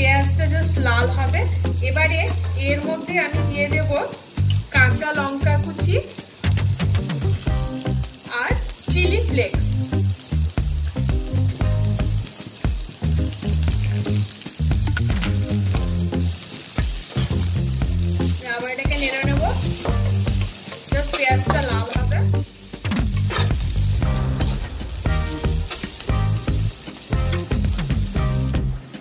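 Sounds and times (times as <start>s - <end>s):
background music: 0.0s - 29.0s
vegetables sizzling in hot oil: 0.0s - 29.0s
metal spatula scraping pan: 18.8s - 28.4s.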